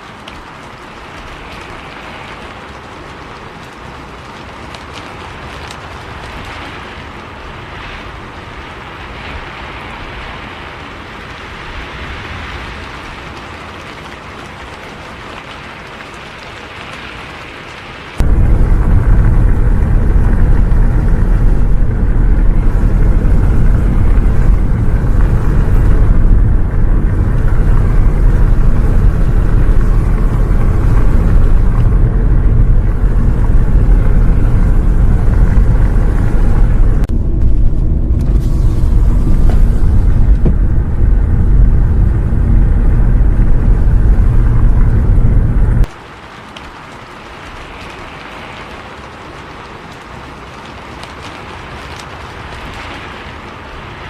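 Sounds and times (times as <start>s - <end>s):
bus engine and road rumble: 18.1s - 46.0s.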